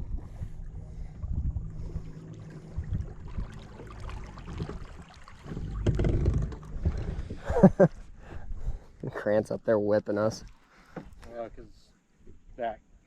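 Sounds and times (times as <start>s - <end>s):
boat motor hum: 0.0s - 8.2s
low rumble: 0.0s - 8.5s
water noise: 0.0s - 12.5s
wind: 0.0s - 13.0s.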